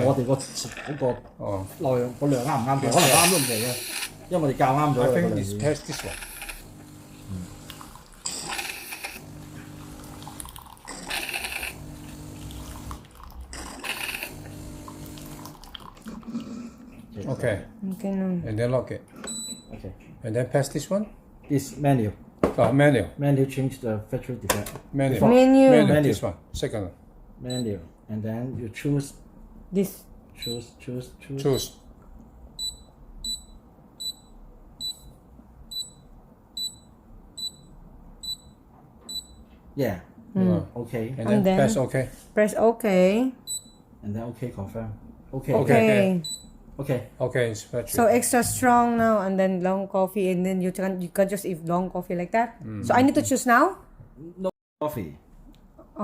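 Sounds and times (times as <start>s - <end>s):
coffee machine pump humming: 0.0s - 16.1s
hissing bursts of water: 2.1s - 4.2s.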